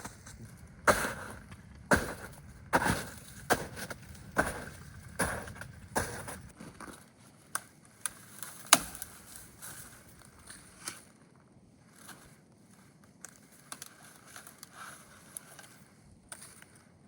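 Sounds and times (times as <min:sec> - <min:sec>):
sharp crunches: 0:00.0 - 0:06.5.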